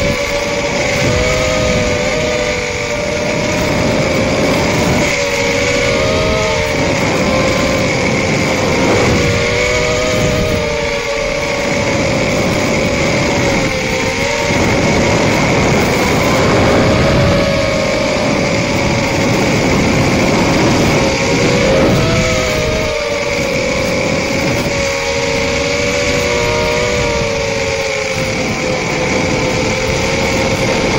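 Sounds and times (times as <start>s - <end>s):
quadcopter motors whining: 0.0s - 30.9s
rushing wind noise: 0.0s - 30.9s.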